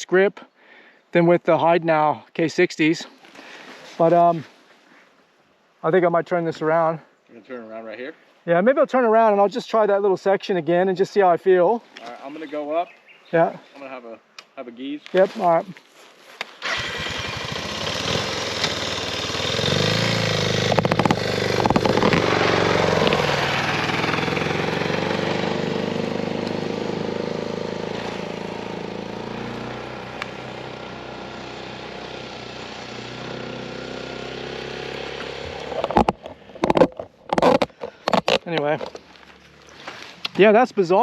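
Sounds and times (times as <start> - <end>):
motorcycle engine idling: 16.6 - 36.2
dirt bike revving: 16.6 - 36.8.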